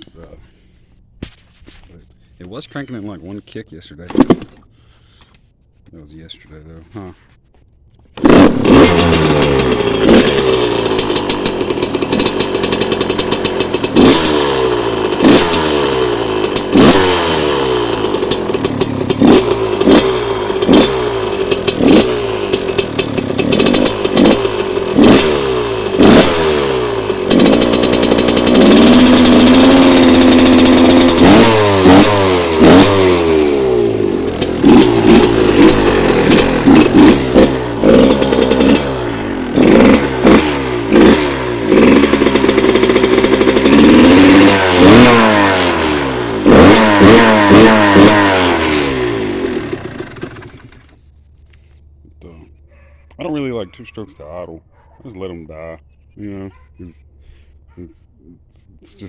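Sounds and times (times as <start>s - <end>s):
dirt bike engine revving: 8.1s - 52.6s.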